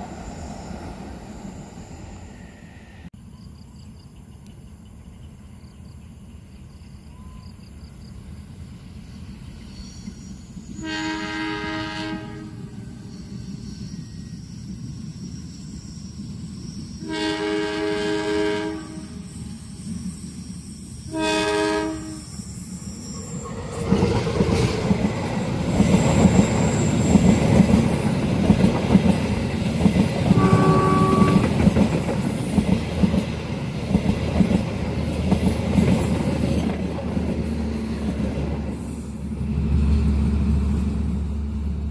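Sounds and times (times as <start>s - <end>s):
train rumbling past: 0.0s - 3.4s, 7.1s - 41.9s
train horn blasts: 10.8s - 12.8s, 17.0s - 19.4s, 21.1s - 22.4s, 30.3s - 31.7s
wheels clattering on rails: 23.2s - 41.9s.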